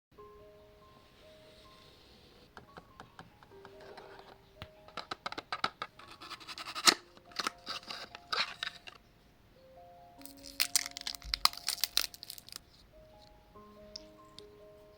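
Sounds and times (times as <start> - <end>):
soft background music: 0.1 - 14.9
packaging scratching and tearing: 6.0 - 9.0, 10.2 - 12.6.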